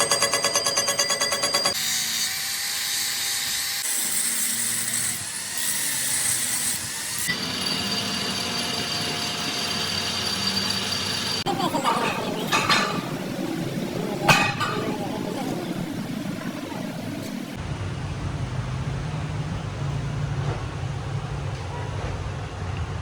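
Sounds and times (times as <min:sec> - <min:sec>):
power tool whine and hiss: 0:01.8 - 0:11.4.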